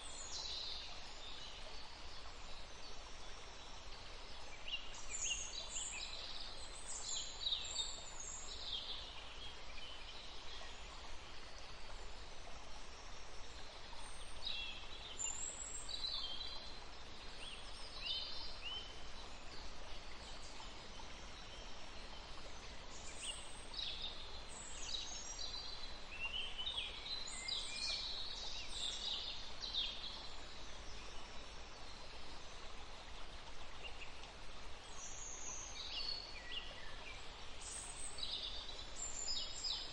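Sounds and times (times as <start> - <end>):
river water running: 0.0 - 39.9
small birds singing: 12.9 - 32.2, 33.8 - 39.9.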